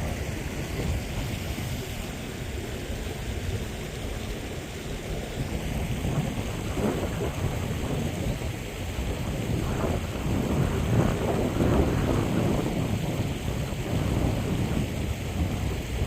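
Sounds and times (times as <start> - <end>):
wash of open water: 0.0 - 16.0
wind rumbling on microphone: 0.0 - 16.0.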